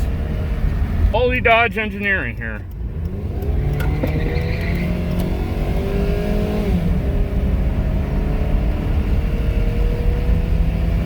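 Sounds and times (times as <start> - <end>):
car engine accelerating hard: 0.0 - 11.0.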